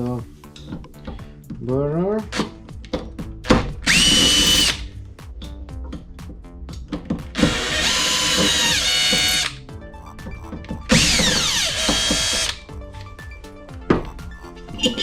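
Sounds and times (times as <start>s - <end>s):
cordless drill whining: 3.8s - 4.9s, 7.4s - 9.6s, 10.9s - 12.6s.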